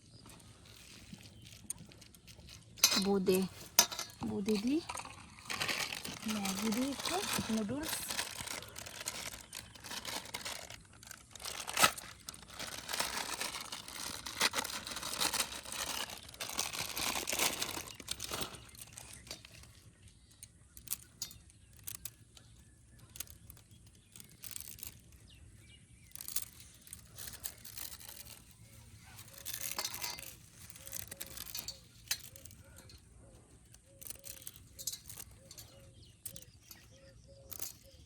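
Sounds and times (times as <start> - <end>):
noodle packet crinkling: 0.0 - 22.2, 23.1 - 25.4, 26.0 - 33.0, 33.6 - 36.6
dry noodles breaking: 4.6 - 19.8.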